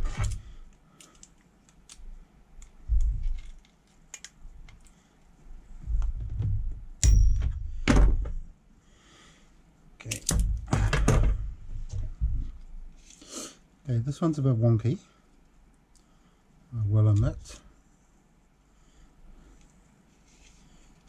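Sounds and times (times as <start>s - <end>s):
small clicks and handling knocks: 0.2s - 5.0s
sharp metallic click and ring: 7.0s - 7.5s.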